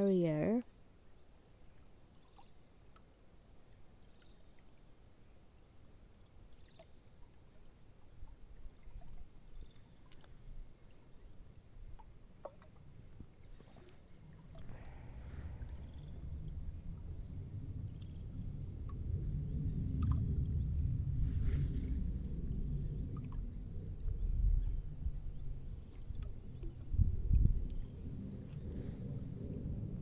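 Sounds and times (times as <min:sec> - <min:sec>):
high-pitched insect chorus: 0:00.0 - 0:30.0
low rumble: 0:14.2 - 0:30.0.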